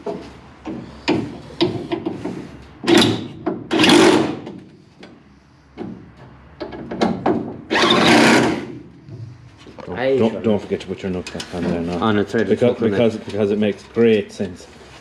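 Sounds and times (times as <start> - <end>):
rasping bursts: 7.7 - 8.8.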